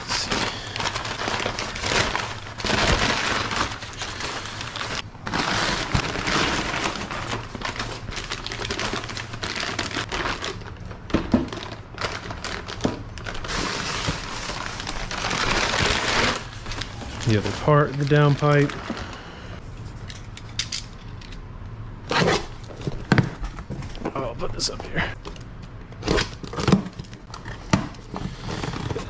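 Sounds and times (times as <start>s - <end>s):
packing material crinkling: 0.0s - 19.3s.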